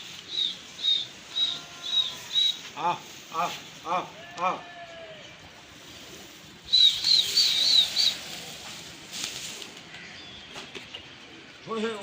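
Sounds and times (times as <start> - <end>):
small bird chirping: 0.2 - 2.6, 6.7 - 8.3.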